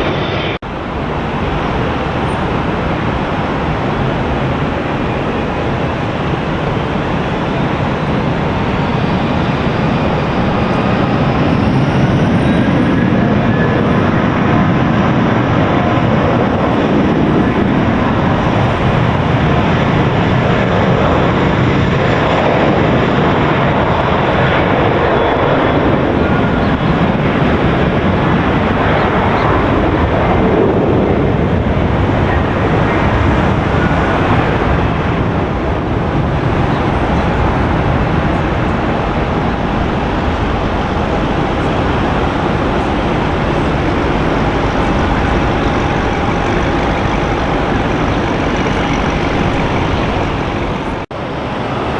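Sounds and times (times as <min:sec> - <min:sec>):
faint rising whine: 0:00.0 - 0:13.2, 0:33.8 - 0:51.8
jet engines roaring: 0:00.0 - 0:51.9.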